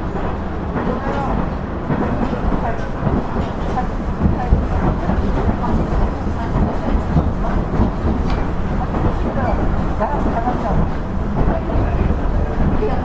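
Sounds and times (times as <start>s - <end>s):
railcar engine and wheels rumbling: 0.0s - 13.0s
wheel clatter over rail joints: 0.2s - 13.0s.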